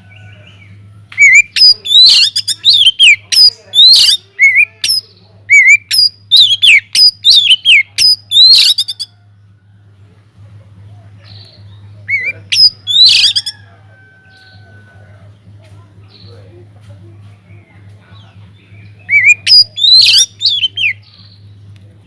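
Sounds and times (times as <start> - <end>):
steady low hum: 0.0 - 22.0
bird singing varied whistled notes: 0.2 - 9.1, 11.3 - 13.6, 18.6 - 21.6.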